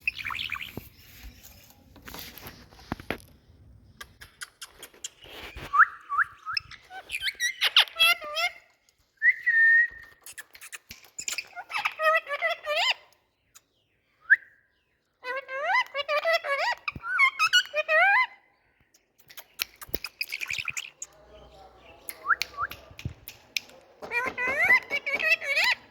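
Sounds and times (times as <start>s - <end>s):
parakeet whistling and chirping: 0.0s - 0.9s, 5.5s - 8.4s.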